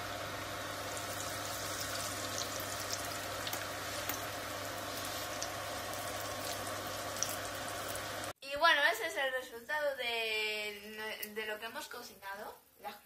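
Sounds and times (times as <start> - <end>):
food sizzling in hot oil: 0.0 - 8.4
oil popping and crackling: 0.8 - 8.3.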